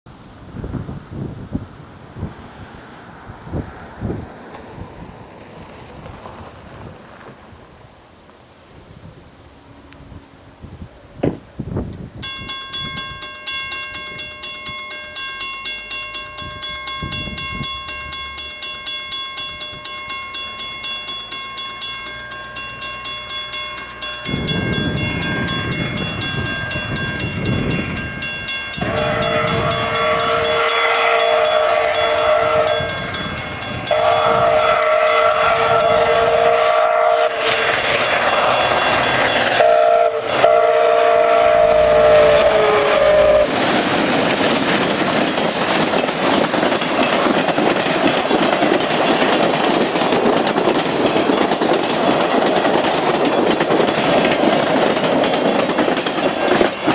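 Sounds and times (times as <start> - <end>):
steam train rushing noise: 0.1 - 56.9
pulsing ringing tone: 12.2 - 43.5
steam whistle blasts: 28.8 - 43.6.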